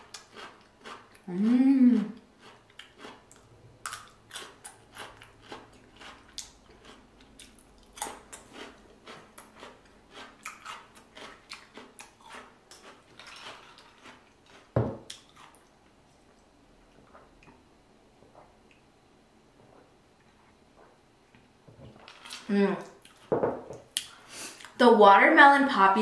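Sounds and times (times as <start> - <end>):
wet chewing and smacking: 2.4 - 15.7.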